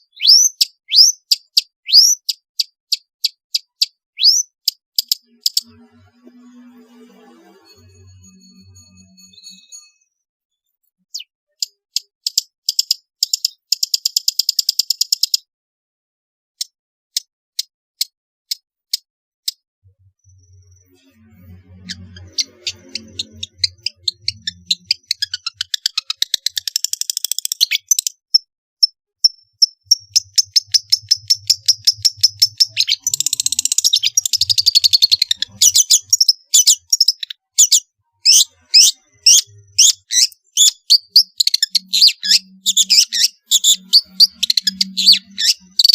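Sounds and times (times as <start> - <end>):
bird chirps and trills: 0.0 - 10.1, 20.0 - 28.4, 29.2 - 45.9.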